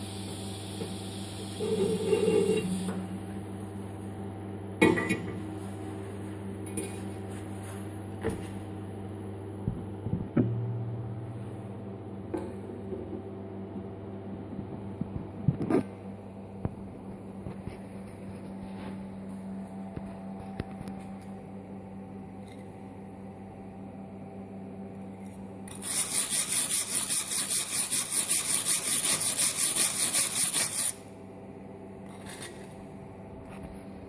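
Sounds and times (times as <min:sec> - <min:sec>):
welding arc pulsing hiss: 0:00.0 - 0:03.0, 0:25.7 - 0:31.0
welding machine hum: 0:00.0 - 0:04.2, 0:25.2 - 0:31.1.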